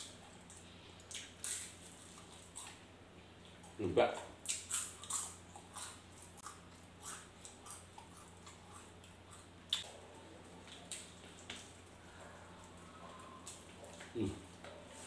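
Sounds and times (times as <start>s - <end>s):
person chewing with mouth smacks: 0.0s - 2.8s, 3.4s - 9.9s
low steady hum: 0.0s - 15.0s.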